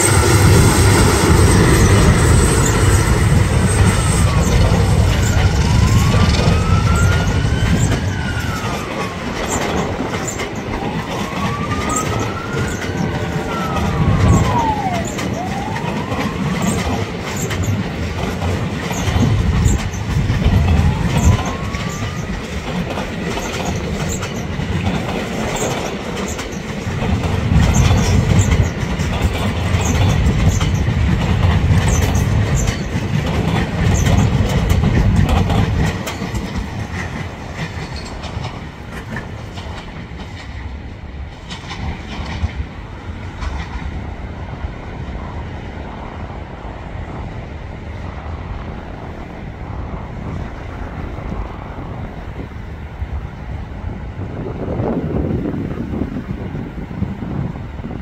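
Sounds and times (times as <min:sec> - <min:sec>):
wheels clacking over rail joints: 0:00.0 - 0:46.0
train coaches rumbling: 0:00.0 - 0:58.0.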